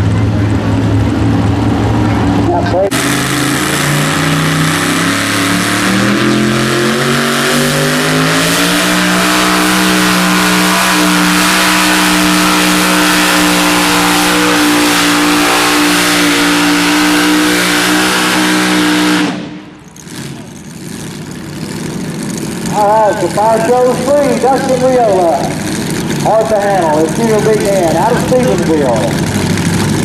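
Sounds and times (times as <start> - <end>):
vehicle engine at full throttle: 0.0 - 30.0.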